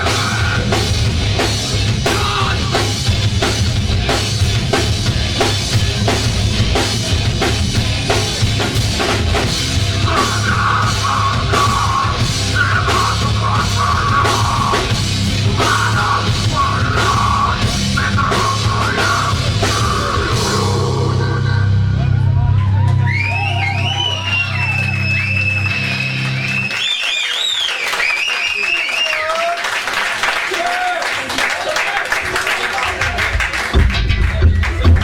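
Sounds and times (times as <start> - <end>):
drum and cymbal hits: 0.0 - 22.0, 33.3 - 35.0
rock band playing: 0.0 - 26.8.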